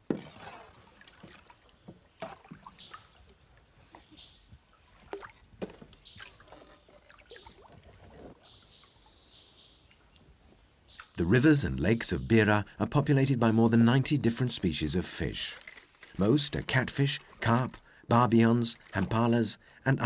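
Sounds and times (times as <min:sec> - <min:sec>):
paddles splashing in water: 0:00.0 - 0:09.1, 0:15.5 - 0:19.4
knocks against canoe hull: 0:05.6 - 0:06.0.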